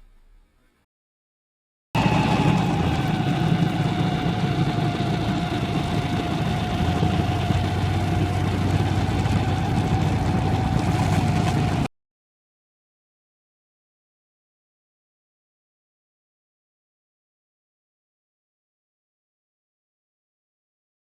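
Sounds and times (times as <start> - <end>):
snowmobile engine running: 2.0 - 11.9.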